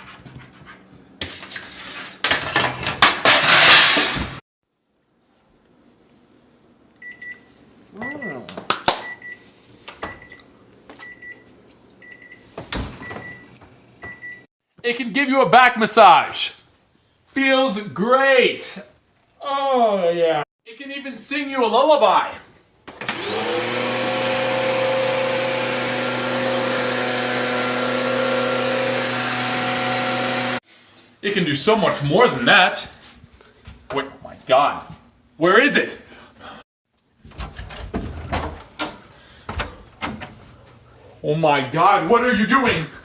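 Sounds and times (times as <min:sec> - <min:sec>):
microwave oven beeping: 0:07.0 - 0:08.4, 0:10.0 - 0:14.4
vacuum cleaner motor running: 0:22.9 - 0:30.6.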